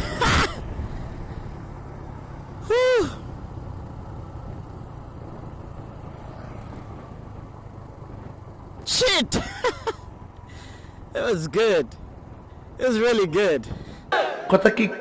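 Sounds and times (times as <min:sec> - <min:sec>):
motorcycle engine rumble: 0:00.0 - 0:14.2.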